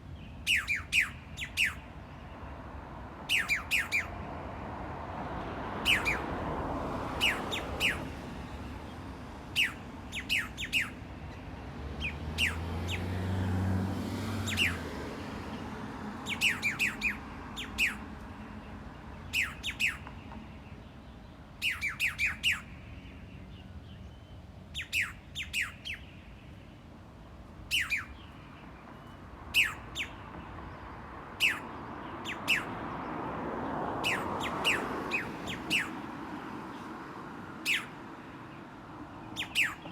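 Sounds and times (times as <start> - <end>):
birds giving sharp falling calls: 3.3 - 4.2, 9.5 - 11.1, 12.0 - 13.1, 16.2 - 18.2, 29.5 - 30.3, 31.3 - 32.8, 34.0 - 36.0, 37.6 - 38.0, 39.3 - 39.9.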